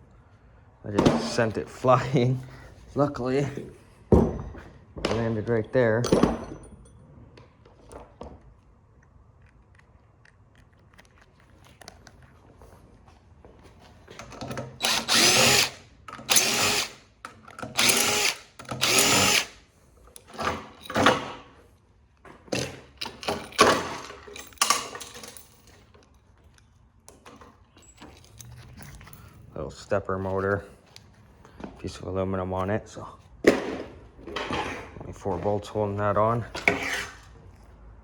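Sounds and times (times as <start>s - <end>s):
power drill whining: 14.7s - 17.0s, 17.7s - 19.6s.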